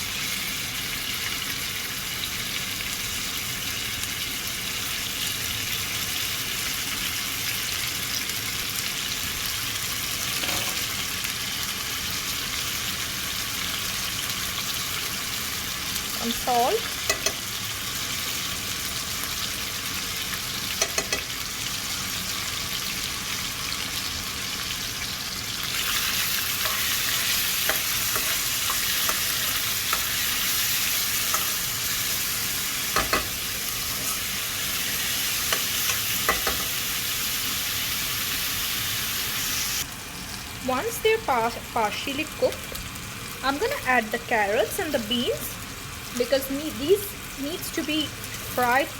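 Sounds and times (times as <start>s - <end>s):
chicken sizzling in hot oil: 0.0s - 48.9s.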